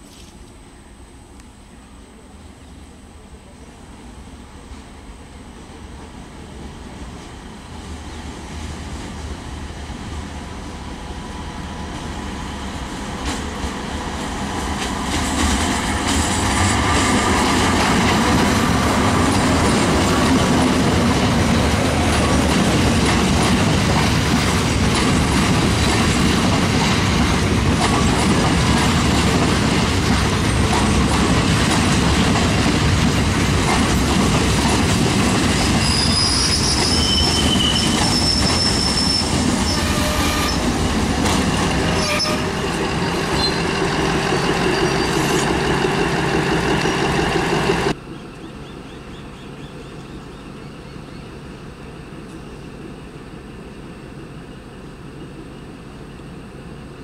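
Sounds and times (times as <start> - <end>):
train wheels rumbling on rails: 4.1 - 48.0
high-pitched wheel squeals: 35.7 - 40.7, 41.8 - 45.5.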